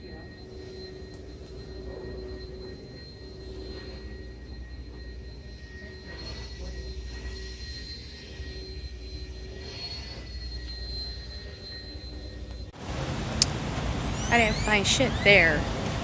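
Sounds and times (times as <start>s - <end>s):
thin high whine: 0.0s - 16.0s
low mechanical rumble: 12.6s - 16.0s.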